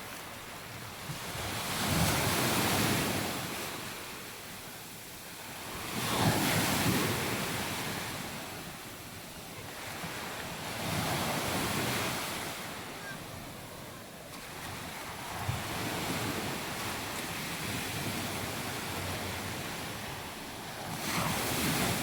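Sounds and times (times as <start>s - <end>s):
waves breaking on beach: 5.4s - 8.9s, 9.5s - 22.0s.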